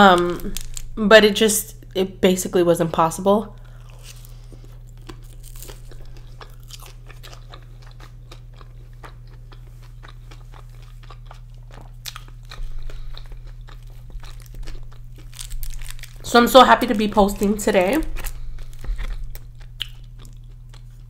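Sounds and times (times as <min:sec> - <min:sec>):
close chewing with mouth clicks: 0:03.7 - 0:16.3, 0:18.2 - 0:21.0.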